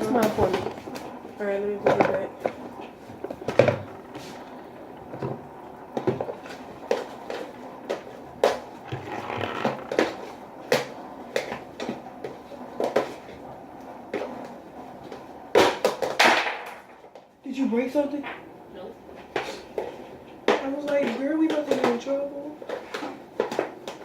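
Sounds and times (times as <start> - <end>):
household objects knocking and clattering: 1.7 - 4.3.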